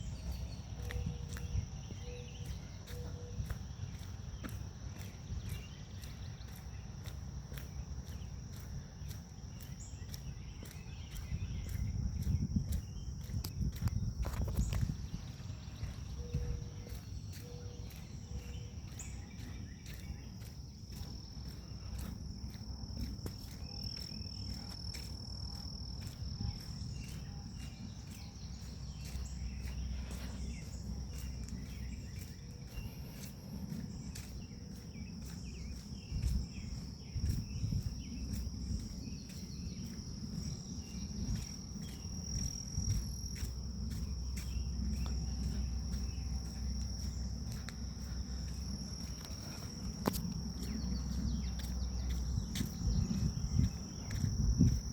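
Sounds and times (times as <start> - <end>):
insects chirring: 0.0 - 54.9.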